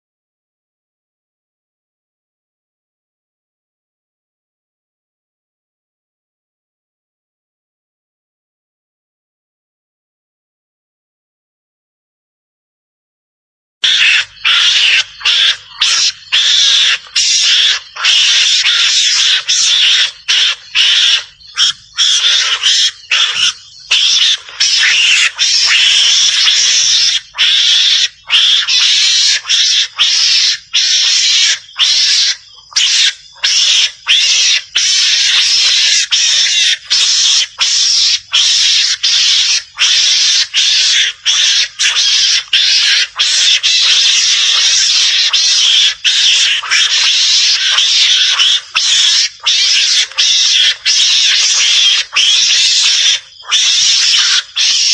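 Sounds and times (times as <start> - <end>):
mongoose calls chattering: 13.8 - 54.9.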